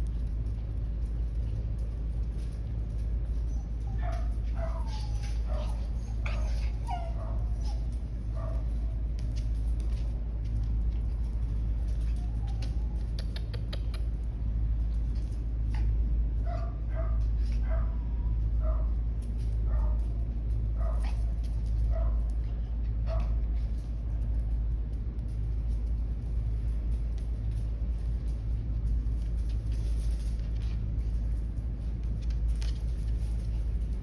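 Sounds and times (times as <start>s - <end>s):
steady low rumble: 0.0s - 34.0s
dogs yipping and whining: 3.2s - 8.9s, 11.9s - 13.2s.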